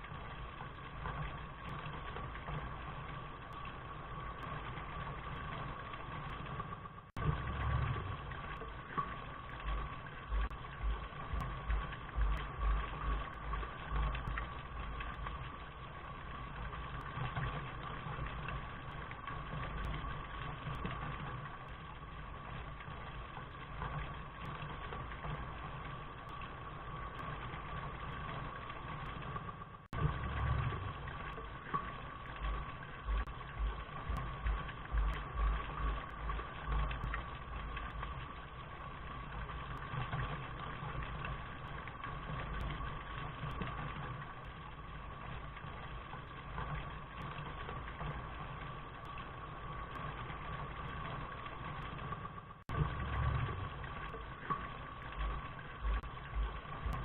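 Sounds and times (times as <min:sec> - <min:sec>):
steady rain: 0:00.0 - 0:57.0
low rumble: 0:07.2 - 0:25.7, 0:29.9 - 0:40.4, 0:52.7 - 0:57.0.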